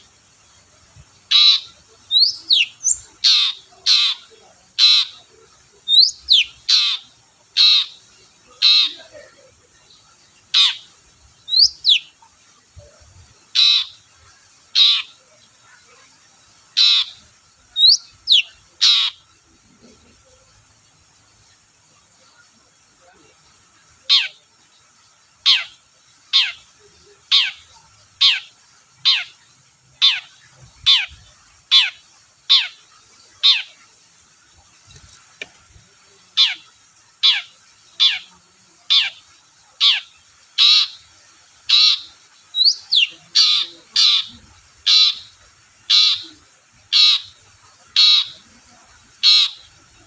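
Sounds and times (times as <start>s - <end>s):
shrike harsh calls: 1.2s - 9.4s, 41.7s - 49.8s.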